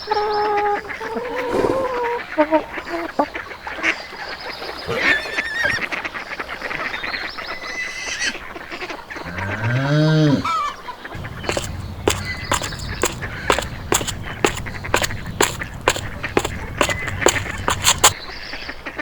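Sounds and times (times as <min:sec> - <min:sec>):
long low goose call: 0:00.0 - 0:03.4, 0:09.2 - 0:12.4
geese honking: 0:00.0 - 0:04.1, 0:07.9 - 0:18.2.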